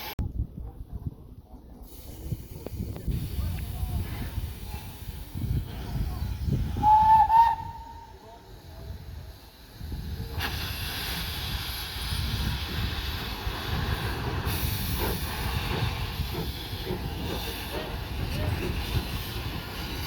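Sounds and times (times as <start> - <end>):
steam hissing: 1.8 - 20.0
steam locomotive whistle toot: 6.6 - 8.3.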